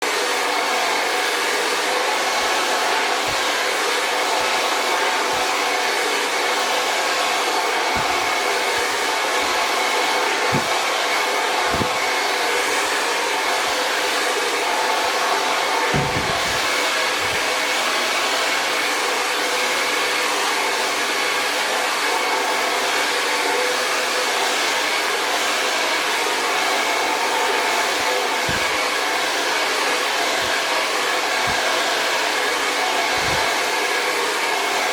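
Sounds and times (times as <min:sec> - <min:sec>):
hair dryer running: 0:00.0 - 0:34.9
soft low thumps: 0:16.0 - 0:16.6.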